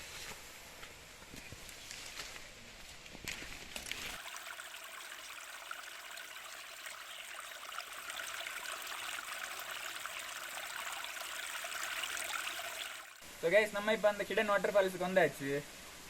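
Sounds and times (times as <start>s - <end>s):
small waterfall splashing: 4.1s - 13.2s.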